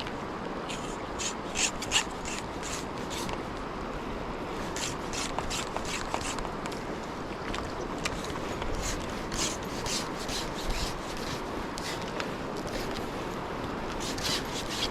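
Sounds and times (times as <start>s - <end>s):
river water rushing: 0.0s - 14.9s
scraping and rubbing noises: 0.6s - 3.4s, 4.5s - 6.5s, 8.0s - 13.3s, 13.9s - 14.9s.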